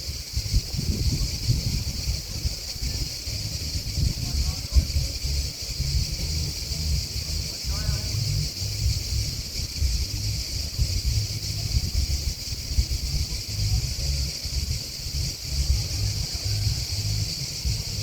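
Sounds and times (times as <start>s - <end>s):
grasshoppers and crickets chirping: 0.0s - 18.0s
wind buffeting microphone: 0.0s - 18.0s.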